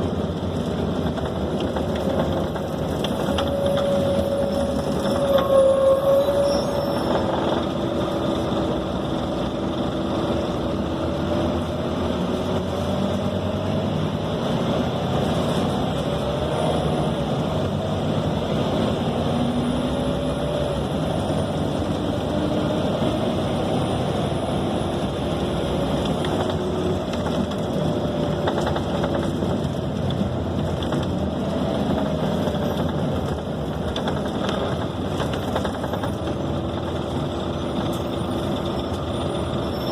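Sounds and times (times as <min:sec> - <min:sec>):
bus engine running: 0:00.0 - 0:39.9
road and body noise: 0:00.0 - 0:39.9.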